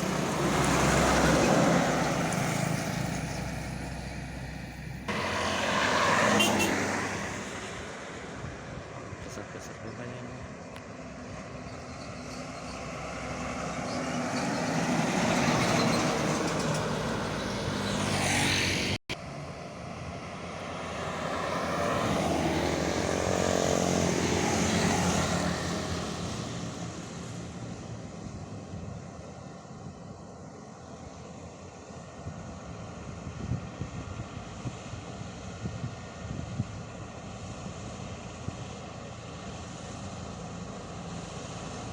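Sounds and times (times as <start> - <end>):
heavy truck engines passing: 0.0 - 30.4.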